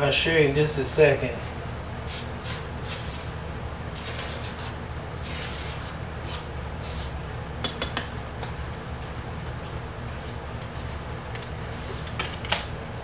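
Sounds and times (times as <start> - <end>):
steady low hum: 0.0 - 13.0
scraping and rubbing of tools: 2.1 - 7.2.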